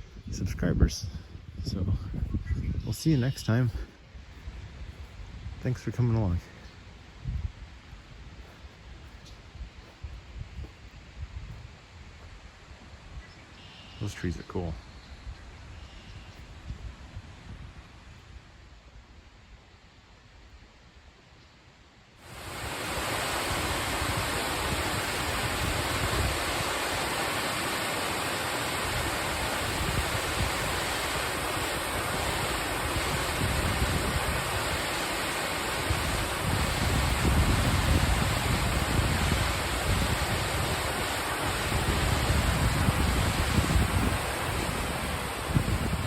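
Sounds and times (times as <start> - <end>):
wind buffeting microphone: 0.0 - 3.5, 4.2 - 6.4, 7.0 - 13.4, 22.3 - 46.0
waterfall roaring: 22.2 - 46.0.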